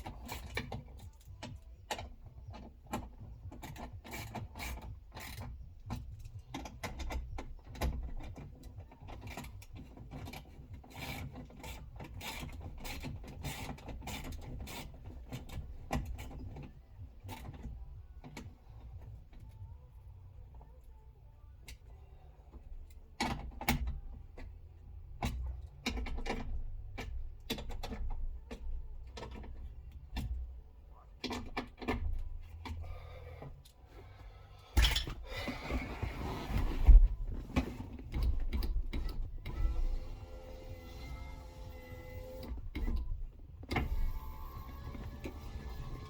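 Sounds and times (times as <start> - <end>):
clicks and knocks of hand work: 0.0 - 19.7
electric window motor whine: 39.2 - 46.0.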